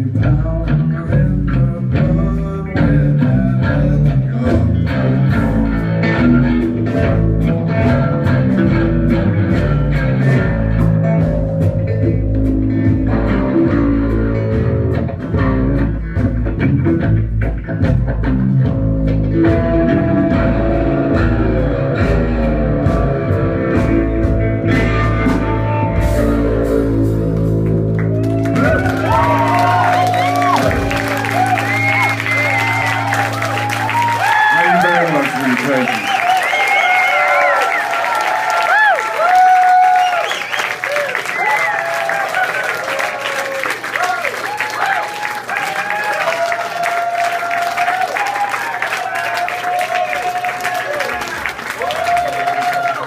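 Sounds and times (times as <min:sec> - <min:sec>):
live country-rock band playing: 0:00.0 - 0:53.0.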